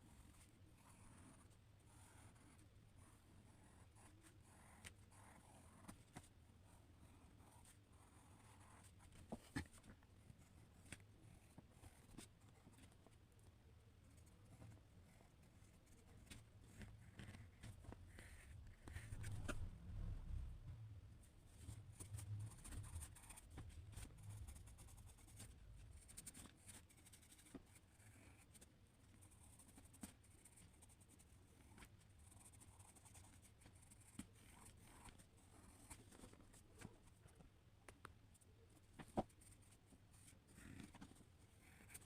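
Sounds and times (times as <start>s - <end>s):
pencil scratching on paper: 0.0s - 13.1s, 14.0s - 19.7s, 21.5s - 37.2s, 39.0s - 42.0s
low rumble: 19.1s - 21.2s.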